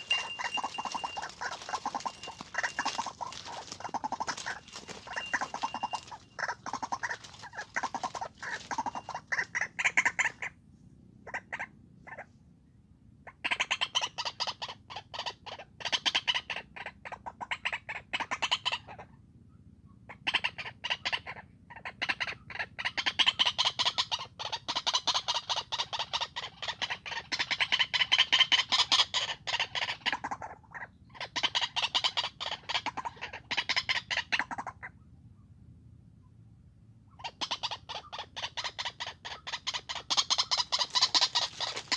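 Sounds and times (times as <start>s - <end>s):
waterhen harsh calls: 0.0s - 10.5s, 37.2s - 41.9s.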